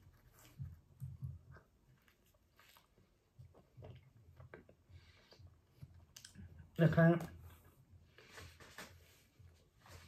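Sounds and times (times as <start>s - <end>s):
faint chewing of bread: 0.0s - 6.6s.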